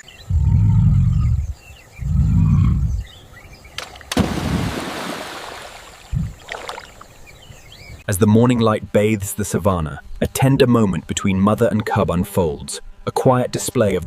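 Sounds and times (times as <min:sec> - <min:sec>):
faint bird chirps: 0:00.0 - 0:03.8
lion roaring: 0:00.2 - 0:03.2.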